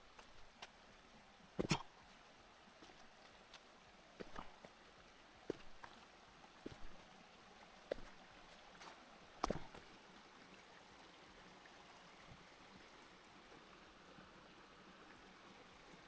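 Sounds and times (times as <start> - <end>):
stream running: 0.0 - 16.0
footsteps on stones: 1.6 - 1.9, 2.8 - 3.6, 4.2 - 4.7, 5.5 - 6.0, 6.7 - 7.0, 7.9 - 8.2, 8.8 - 9.9.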